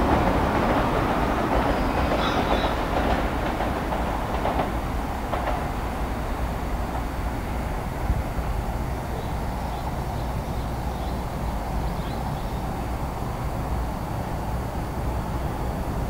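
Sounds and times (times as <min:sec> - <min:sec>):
distant train rumble: 0:00.0 - 0:16.0
faint bird chirps: 0:01.7 - 0:02.8.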